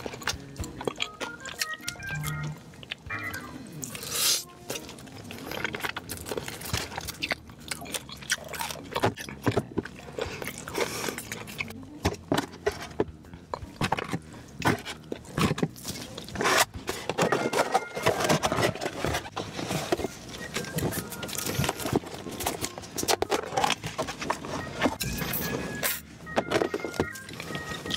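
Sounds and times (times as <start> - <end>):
person chewing crunchy food: 0.0 - 11.9, 12.9 - 17.1.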